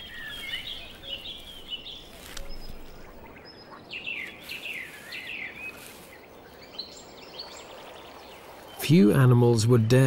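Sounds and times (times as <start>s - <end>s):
high falling bird chirps: 0.0s - 8.9s
outdoor background hiss: 0.0s - 10.0s.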